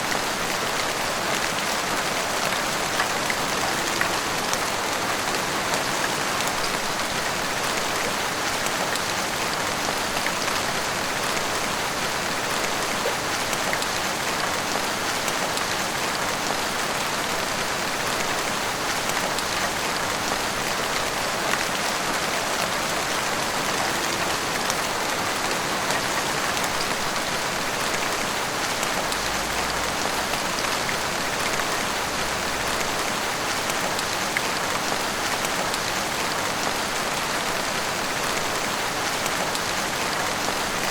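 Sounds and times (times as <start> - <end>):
heavy rain pattering: 0.0 - 40.9.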